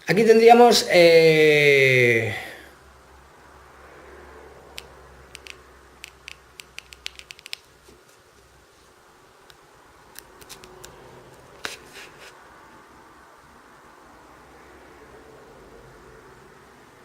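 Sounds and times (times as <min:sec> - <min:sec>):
clicks and taps handling phone: 0:04.8 - 0:07.7.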